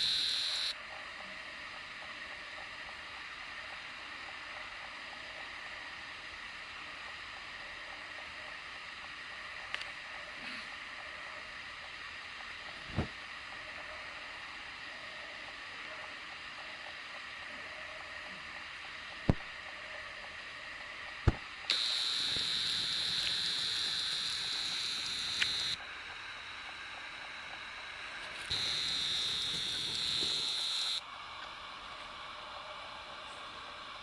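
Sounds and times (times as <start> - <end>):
lens zoom motor whining: 0.0 - 0.8, 21.3 - 25.8, 28.2 - 31.0
steady hiss: 7.7 - 34.0
sharp clicks: 21.3 - 25.8.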